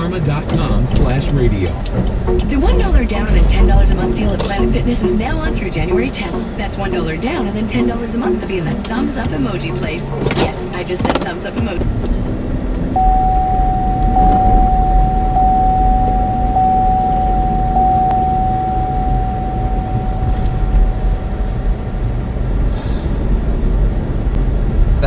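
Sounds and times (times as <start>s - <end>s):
car cabin road rumble: 0.0s - 25.0s
steady high tone: 1.6s - 10.7s, 13.0s - 22.6s.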